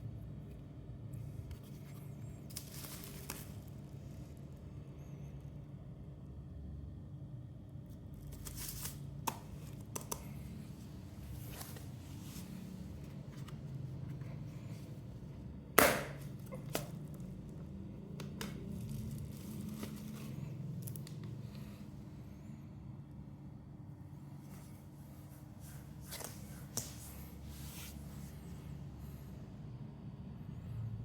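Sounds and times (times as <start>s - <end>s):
steady low hum: 0.0s - 31.0s
crinkling: 1.6s - 3.9s, 18.2s - 21.7s.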